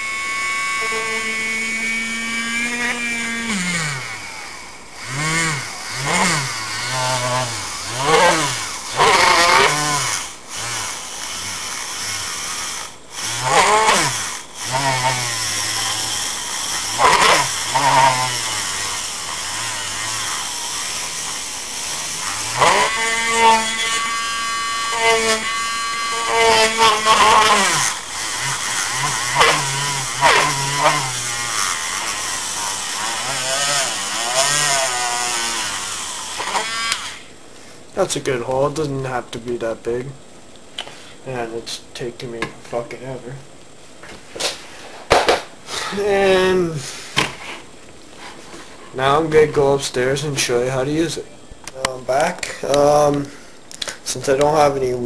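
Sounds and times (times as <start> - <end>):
power drill boring through plastic: 0.0 - 37.3.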